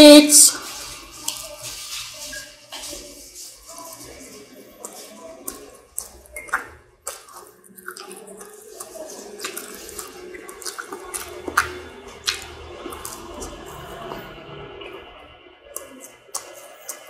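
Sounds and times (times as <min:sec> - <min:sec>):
chewing with mouth smacks: 0:04.8 - 0:14.4, 0:15.7 - 0:17.0.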